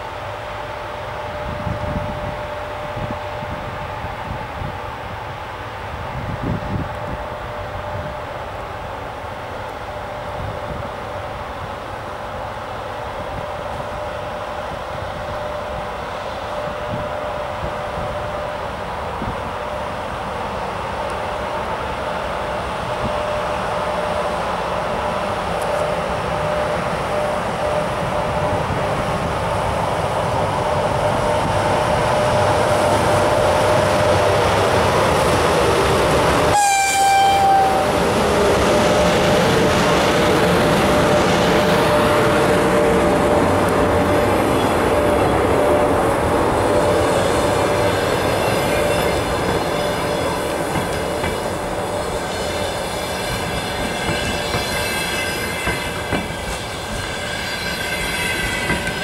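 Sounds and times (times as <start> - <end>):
electric locomotive whine and rolling: 0.0 - 59.0
train horn blast: 36.4 - 59.0
high wheel squeal: 46.8 - 59.0.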